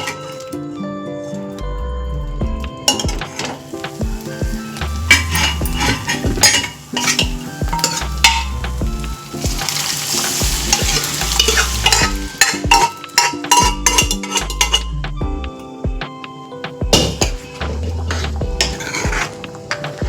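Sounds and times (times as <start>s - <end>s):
food sizzling: 2.4s - 20.0s
spoon scraping food in a pan: 5.1s - 8.6s, 9.7s - 14.9s, 18.0s - 20.0s
spoon knocking against pan: 10.7s - 14.9s.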